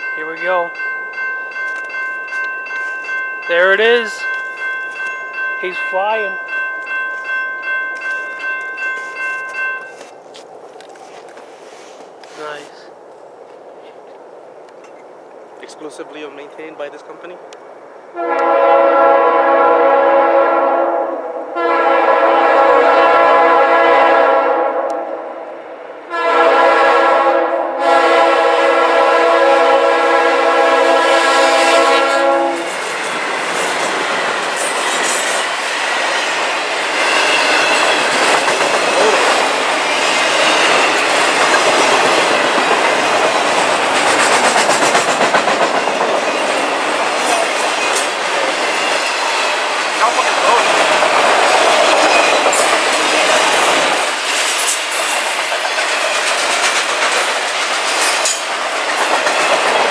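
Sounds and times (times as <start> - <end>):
locomotive air horn blasts: 18.1 - 25.3, 26.1 - 32.8
train wheels clattering on rails: 31.7 - 59.9.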